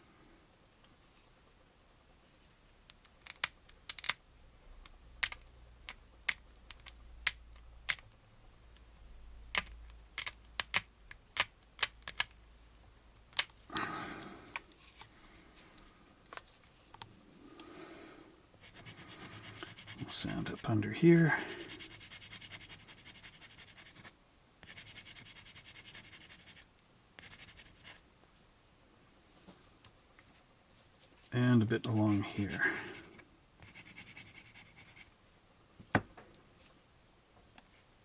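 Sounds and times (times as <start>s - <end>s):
plastic model parts clicking: 2.9s - 4.2s, 4.8s - 8.1s, 9.5s - 12.4s
sandpaper rubbing on plastic: 18.6s - 20.6s, 21.4s - 26.6s.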